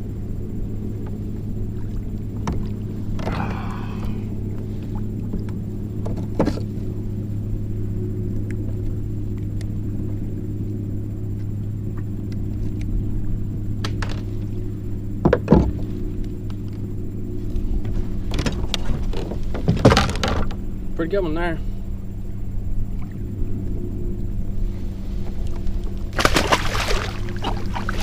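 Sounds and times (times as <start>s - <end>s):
motor humming: 26.0s - 28.0s.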